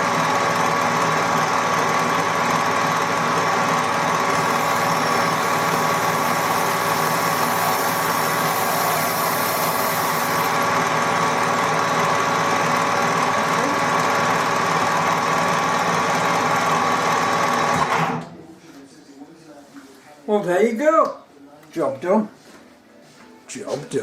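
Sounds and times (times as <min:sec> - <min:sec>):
machine tool drilling metal: 0:02.8 - 0:13.0.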